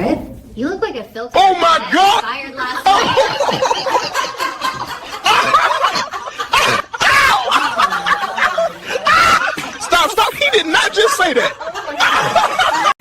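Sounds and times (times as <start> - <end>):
person laughing: 2.8 - 13.0.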